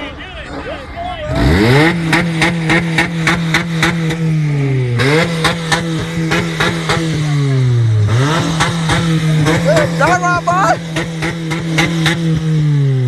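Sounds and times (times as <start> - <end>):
car engine revving: 0.0 - 13.0
sharp exhaust pops: 1.8 - 7.3, 8.0 - 12.6.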